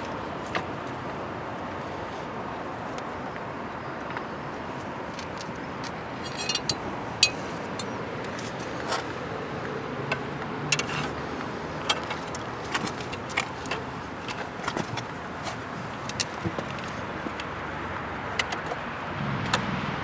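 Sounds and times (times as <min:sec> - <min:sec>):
steady background noise: 0:00.0 - 0:20.0
light metallic clicks and clinks: 0:05.1 - 0:08.4.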